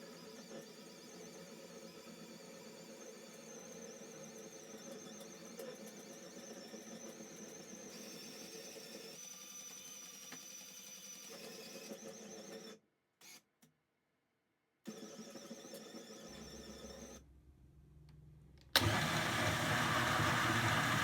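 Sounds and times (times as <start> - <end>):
drill motors whining: 18.8 - 21.0.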